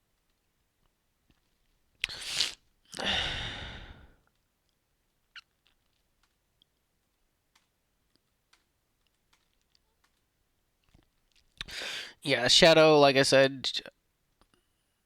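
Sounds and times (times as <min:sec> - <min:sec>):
person sighing: 0:02.0 - 0:04.2
faint clicks: 0:07.5 - 0:11.7.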